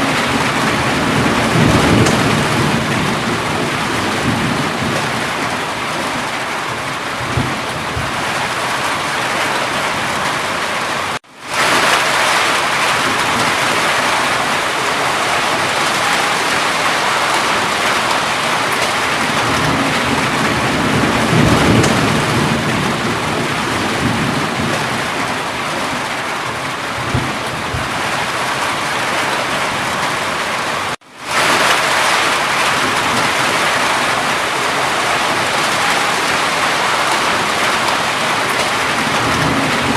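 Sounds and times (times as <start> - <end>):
distant thunder rumbling: 0.0 - 10.6, 11.6 - 30.2, 31.4 - 39.9
heavy rainfall: 0.0 - 39.9.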